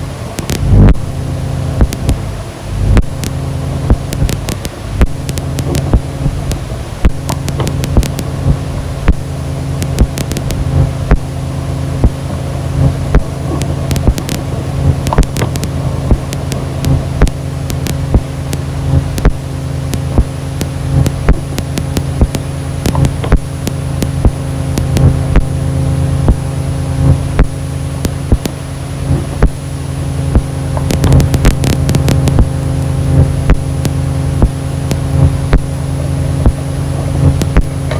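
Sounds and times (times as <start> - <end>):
low droning ambient music: 0.0 - 37.9
sharp clicks and crackles: 0.0 - 37.9.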